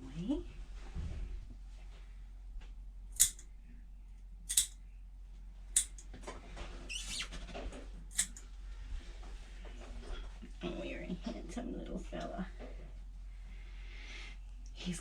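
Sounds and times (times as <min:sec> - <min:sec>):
nail clippers snipping claws: 0:03.2 - 0:03.4, 0:04.5 - 0:04.8, 0:05.8 - 0:06.0, 0:08.1 - 0:08.4.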